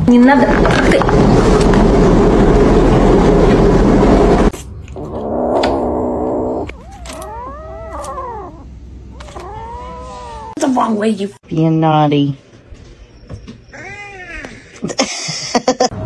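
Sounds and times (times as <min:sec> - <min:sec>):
cat yowling and meowing: 0:06.7 - 0:10.8, 0:13.7 - 0:14.5.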